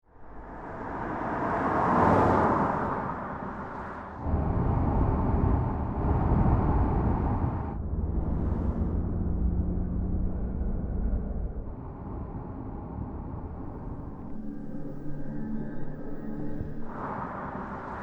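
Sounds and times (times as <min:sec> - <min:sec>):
deep engine rumble: 0:00.1 - 0:17.0
car driving past: 0:00.3 - 0:12.2
dull low hum: 0:02.6 - 0:18.0.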